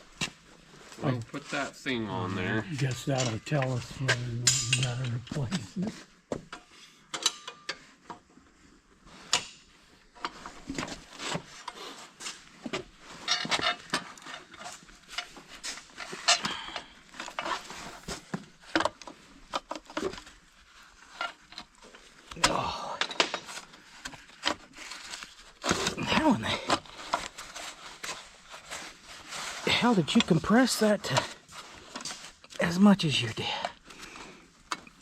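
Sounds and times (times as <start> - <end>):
tools and metal parts clinking: 3.0 - 5.6, 6.5 - 7.8, 13.2 - 17.6.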